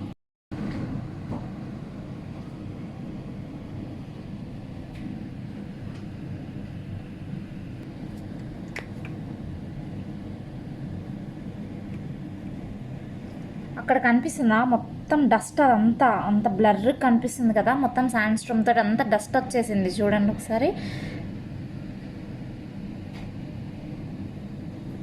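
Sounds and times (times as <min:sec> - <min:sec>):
sandstorm wind rumbling: 0:00.5 - 0:20.7.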